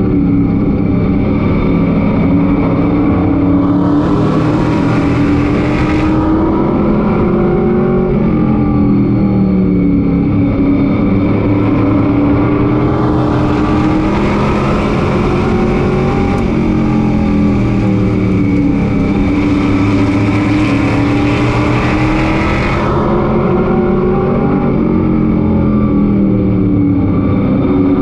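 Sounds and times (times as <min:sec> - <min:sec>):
race truck engine revving: 0:00.0 - 0:28.0
wind and road noise: 0:00.0 - 0:28.0.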